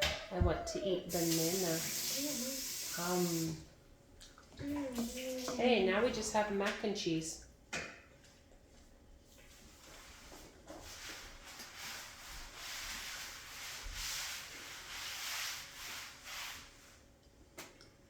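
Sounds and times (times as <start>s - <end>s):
rubbing rustling noise: 9.3s - 17.1s.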